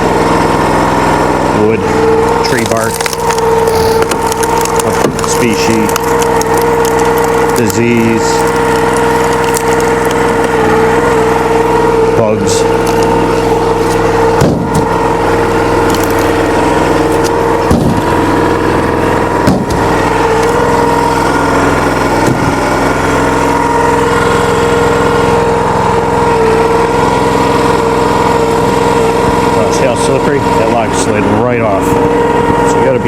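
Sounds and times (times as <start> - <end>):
small gasoline engine running: 0.0 - 33.0
sharp knocks of wood and splitter: 14.3 - 15.0, 17.1 - 18.2, 19.4 - 20.4, 22.2 - 22.6.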